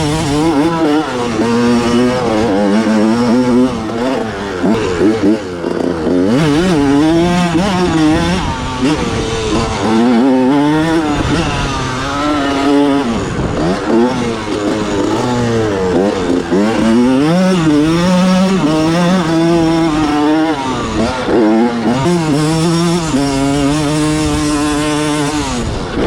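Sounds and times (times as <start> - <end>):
two-stroke motorcycle engine revving: 0.0 - 26.0.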